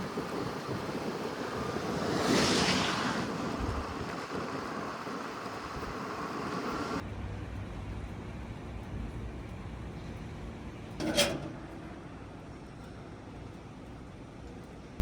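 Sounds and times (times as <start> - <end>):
wind and rough sea: 0.0 - 7.0.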